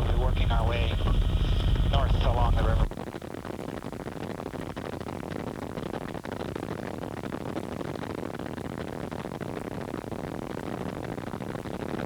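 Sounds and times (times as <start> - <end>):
radio static hiss: 0.0 - 3.0.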